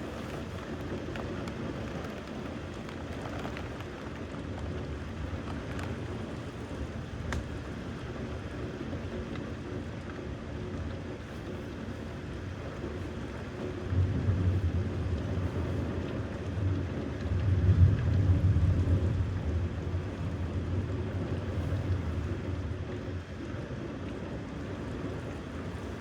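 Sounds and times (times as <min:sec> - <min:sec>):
thunder rumbling: 0:13.9 - 0:22.6.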